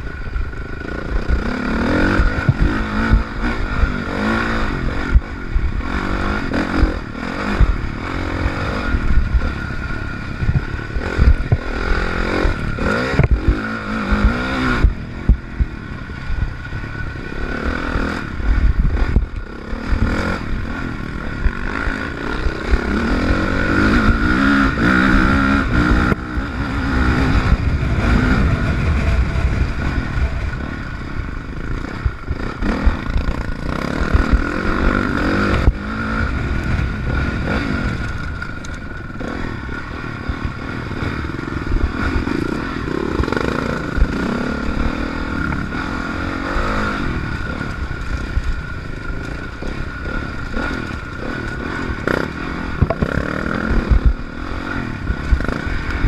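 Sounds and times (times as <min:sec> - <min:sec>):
dirt bike engine revving: 0:00.0 - 0:56.0
bike clattering over bumps: 0:47.8 - 0:54.2.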